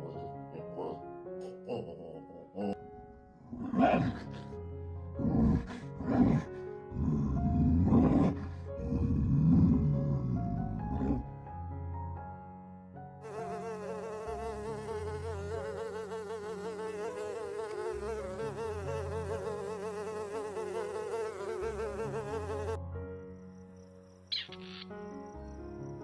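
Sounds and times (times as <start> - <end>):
honeybee buzzing: 13.2 - 22.8.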